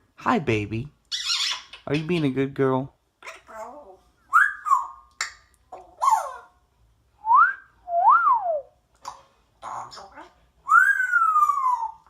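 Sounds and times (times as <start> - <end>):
parrot whistling: 4.3 - 5.1, 10.6 - 12.0.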